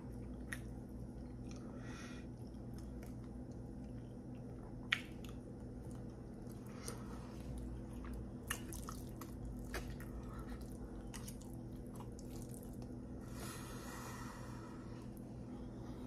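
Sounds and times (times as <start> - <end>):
steady low hum: 0.0 - 16.0
wet chewing and mouth smacks: 0.1 - 1.7, 2.3 - 13.0.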